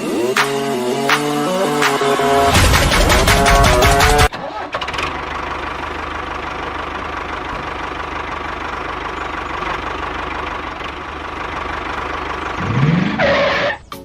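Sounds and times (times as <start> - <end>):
rising sweep into loud burst: 0.8 - 4.3.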